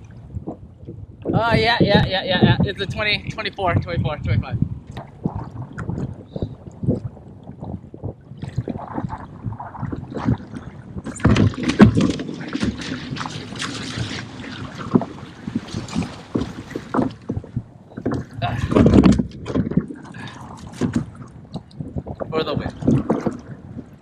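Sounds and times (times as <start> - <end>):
water knocking against kayak hull: 4.9 - 24.0.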